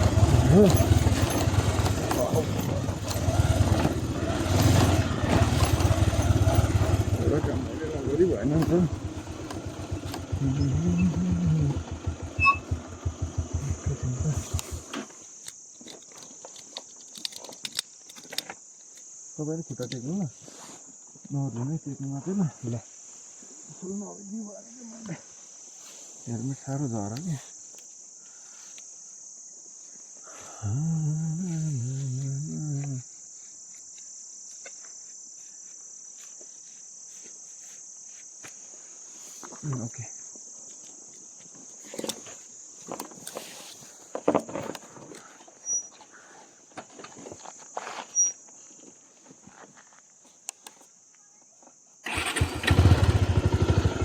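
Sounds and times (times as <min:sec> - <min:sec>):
motorcycle engine idling: 0:00.0 - 0:14.9, 0:52.1 - 0:54.0
high insect buzz: 0:00.0 - 0:54.0.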